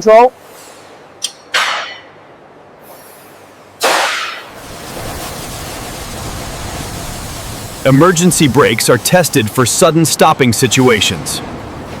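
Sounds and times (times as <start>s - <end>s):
steady even hiss: 2.6s - 12.0s.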